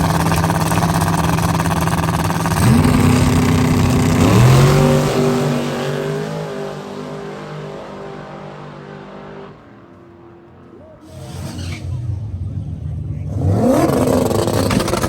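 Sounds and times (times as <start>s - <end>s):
drag race car accelerating: 0.0s - 15.0s.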